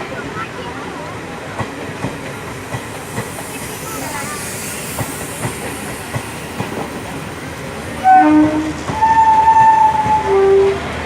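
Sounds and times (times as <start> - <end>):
train wheels clacking on rails: 0.0 - 11.0
train horn blasts: 8.0 - 11.0.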